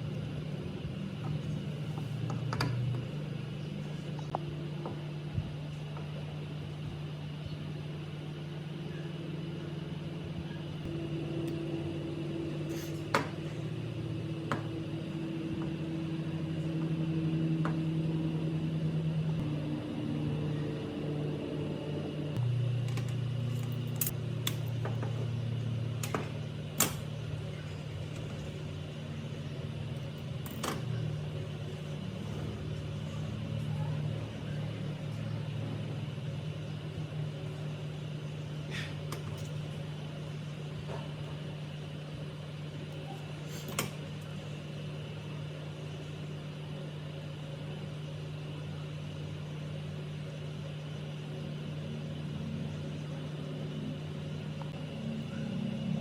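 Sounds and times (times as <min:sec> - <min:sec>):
water pump motor hum: 0:07.9 - 0:33.7.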